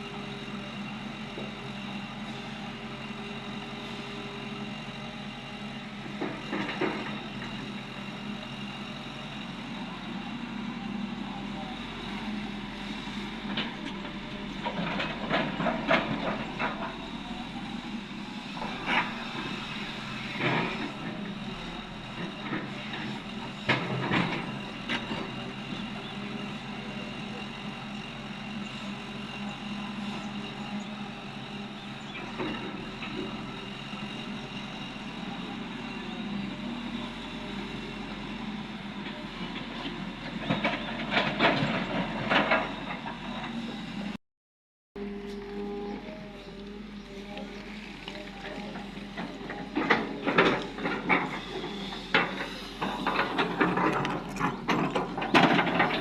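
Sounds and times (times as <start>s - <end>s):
excavator diesel engine running: 0.0s - 44.2s, 45.0s - 56.0s
clanks and knocks: 49.2s - 56.0s.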